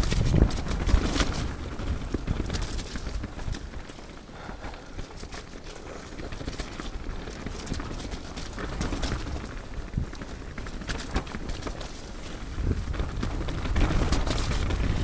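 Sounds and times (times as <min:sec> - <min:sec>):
bike rattling over rough ground: 0:00.0 - 0:15.0
wind: 0:00.0 - 0:15.0.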